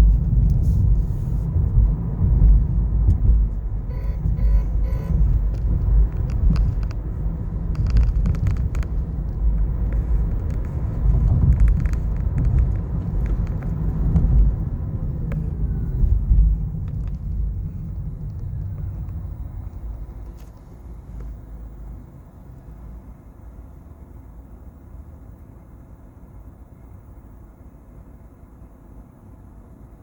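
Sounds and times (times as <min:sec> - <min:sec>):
road and tyre rumble: 0:00.0 - 0:30.0
sharp clicks and knocks: 0:03.0 - 0:15.5.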